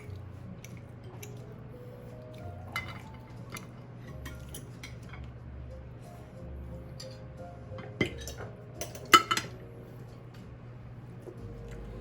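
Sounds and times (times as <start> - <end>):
utensils clinking against plates: 2.3 - 5.3, 7.0 - 9.6.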